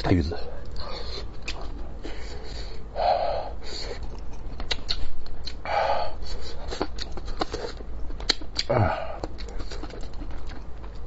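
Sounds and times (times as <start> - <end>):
person chewing: 0.6 - 2.8, 3.6 - 11.0
wet mouth clicks and lip smacks: 4.1 - 5.6, 6.8 - 8.7.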